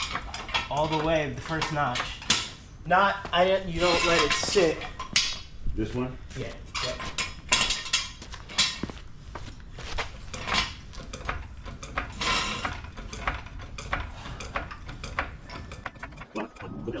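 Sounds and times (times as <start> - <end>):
metal tools clinking: 0.0 - 5.6, 6.4 - 9.0, 10.2 - 17.0.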